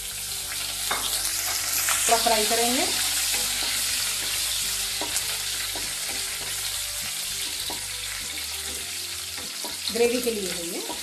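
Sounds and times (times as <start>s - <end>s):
food sizzling in hot oil: 0.0s - 11.0s
spatula scraping and tapping pan: 2.9s - 10.0s.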